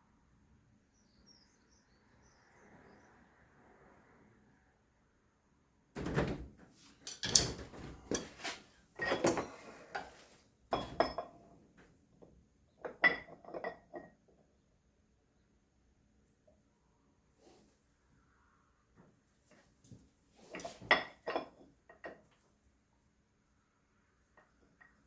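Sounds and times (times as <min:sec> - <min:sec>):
metal objects clinking: 0:07.0 - 0:10.1.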